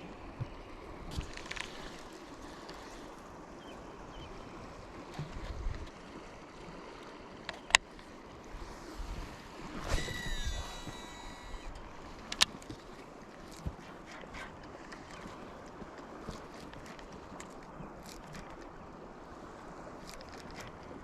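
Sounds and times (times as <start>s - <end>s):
flowing river water: 0.0s - 21.0s
wind on microphone: 8.5s - 12.1s.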